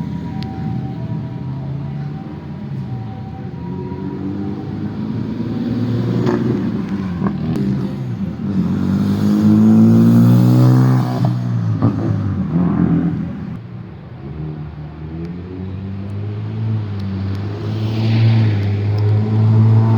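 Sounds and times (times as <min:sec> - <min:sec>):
car engine revving past: 0:04.3 - 0:13.4, 0:15.8 - 0:19.9.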